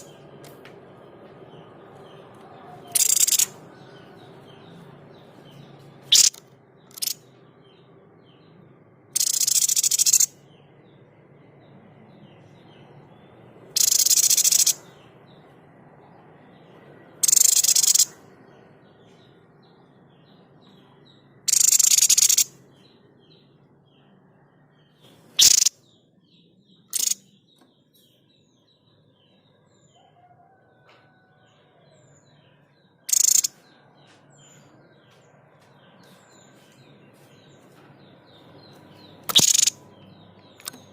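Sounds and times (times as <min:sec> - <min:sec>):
faint twittering: 0:09.2 - 0:10.3, 0:13.8 - 0:14.8, 0:17.2 - 0:18.2, 0:25.4 - 0:25.8, 0:26.9 - 0:27.3, 0:33.1 - 0:33.6, 0:39.3 - 0:39.8.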